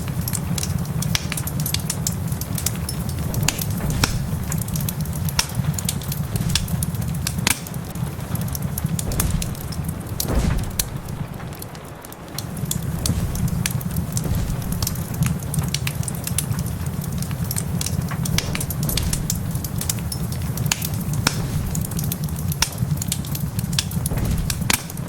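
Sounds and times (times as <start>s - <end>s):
rain: 0.0s - 25.0s
wood fire crackling and popping: 0.0s - 25.0s.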